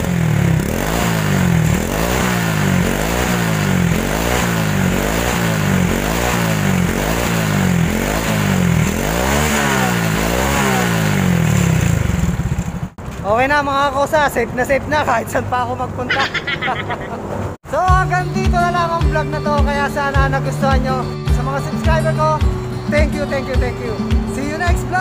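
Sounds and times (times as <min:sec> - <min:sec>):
motorcycle engine revving: 0:00.0 - 0:13.4.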